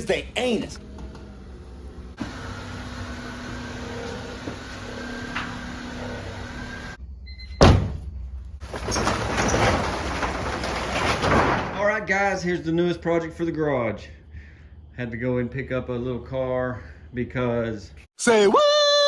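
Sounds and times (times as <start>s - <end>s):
door shutting with thud: 7.5s - 8.2s, 8.8s - 11.8s.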